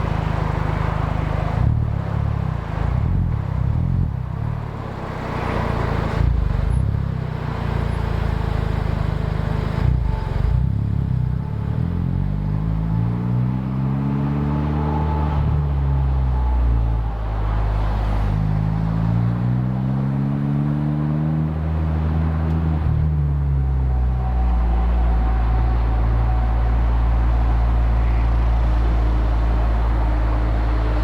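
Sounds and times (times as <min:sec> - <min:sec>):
car exhaust revving: 0:09.6 - 0:31.0.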